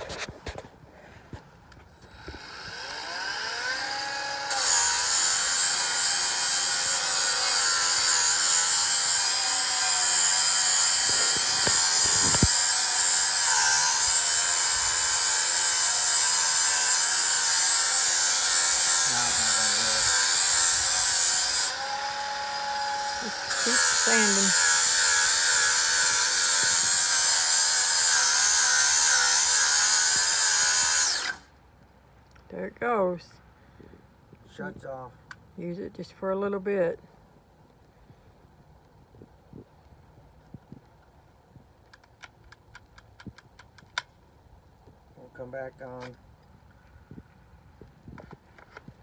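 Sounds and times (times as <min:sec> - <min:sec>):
angle grinder motor whine: 0:02.0 - 0:31.4
sanding disc grinding paint: 0:04.5 - 0:31.2.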